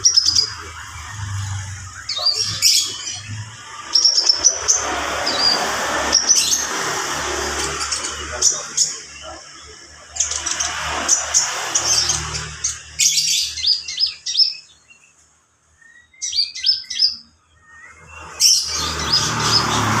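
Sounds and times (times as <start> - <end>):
rushing background noise: 0.0 - 14.2
bird chirping and twittering: 0.0 - 20.0.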